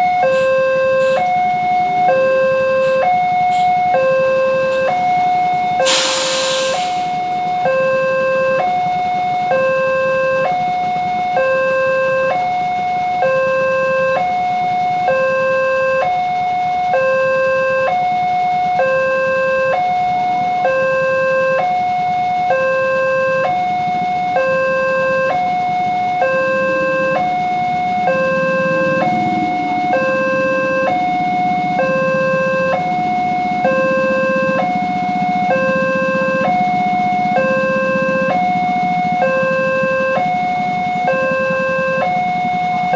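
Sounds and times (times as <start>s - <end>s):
level-crossing two-tone alarm: 0.0s - 42.9s
burst of hiss: 5.8s - 7.1s
low rumble: 26.9s - 39.3s.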